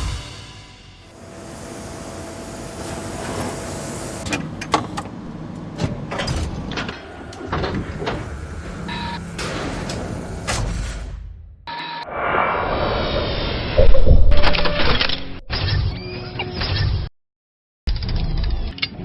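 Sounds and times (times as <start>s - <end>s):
machinery running: 1.0s - 7.0s
sharp mechanical clanks: 2.2s - 6.9s.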